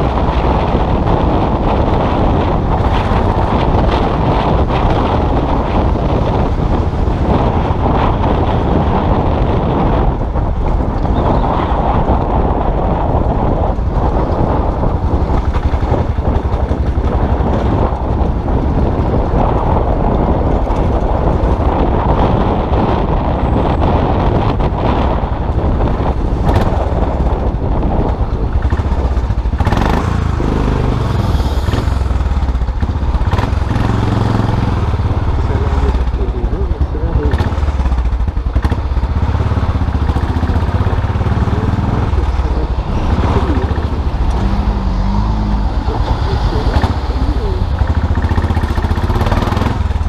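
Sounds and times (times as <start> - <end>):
motorcycle engine running: 0.0 - 50.0
wind rushing over microphone: 0.0 - 50.0.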